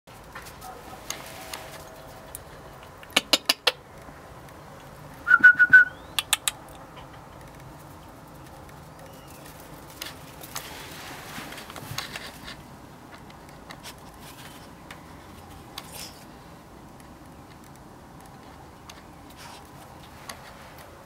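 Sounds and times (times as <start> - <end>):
bird calls: 9.0 - 9.7.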